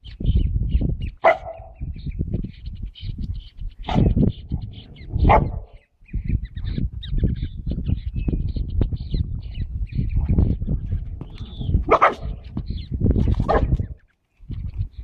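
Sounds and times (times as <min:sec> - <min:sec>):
dog barking: 0:01.2 - 0:01.8, 0:03.9 - 0:04.1, 0:05.2 - 0:05.8, 0:11.9 - 0:12.4, 0:13.5 - 0:13.8
constant low rumble: 0:01.3 - 0:15.0.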